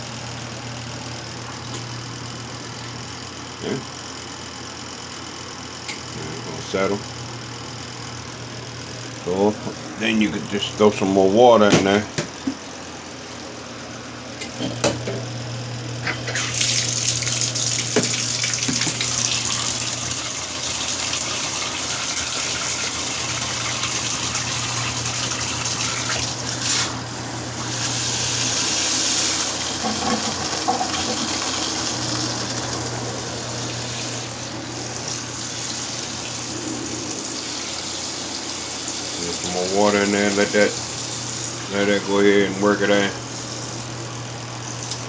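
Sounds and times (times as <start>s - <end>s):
washing machine motor humming: 0.0s - 45.0s
water gushing into a tub: 16.4s - 42.1s.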